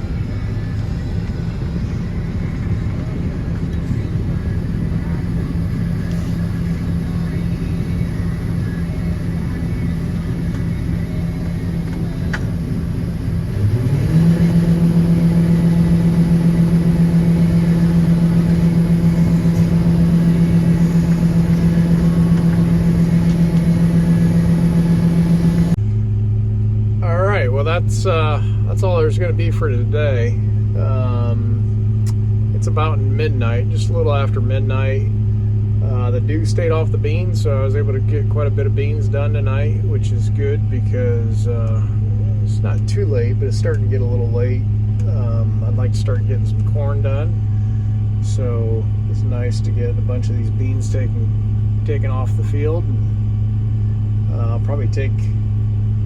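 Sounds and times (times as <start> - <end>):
engine revving: 0.0 - 25.8.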